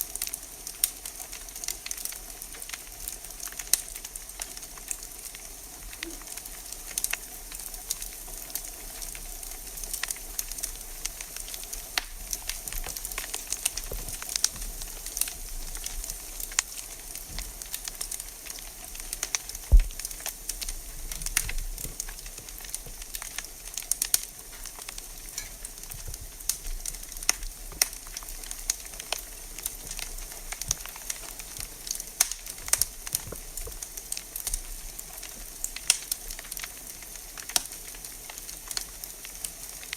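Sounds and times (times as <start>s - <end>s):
wood fire hissing and crackling: 0.0s - 39.9s
loud pop from fire: 19.3s - 23.0s.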